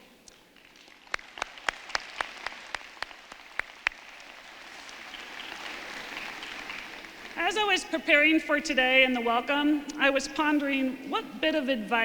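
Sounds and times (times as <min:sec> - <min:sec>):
audience applauding: 0:00.0 - 0:07.9
person clapping loudly nearby: 0:00.2 - 0:07.4.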